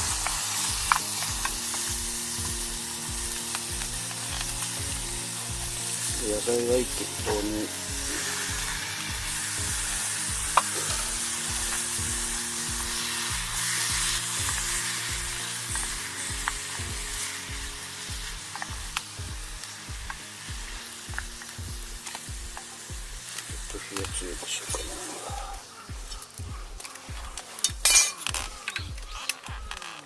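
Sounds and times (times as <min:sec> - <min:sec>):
utensil clicking against pot: 0:00.0 - 0:30.0
vegetables sizzling in hot oil: 0:00.0 - 0:30.0.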